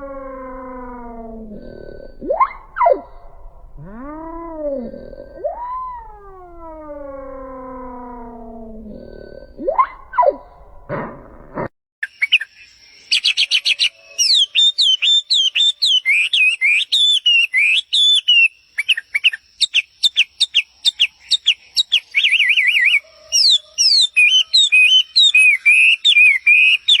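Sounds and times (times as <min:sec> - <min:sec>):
songbird singing whistled chirps: 0:00.7 - 0:10.6, 0:12.0 - 0:27.0
fast warbling trill: 0:02.2 - 0:08.7.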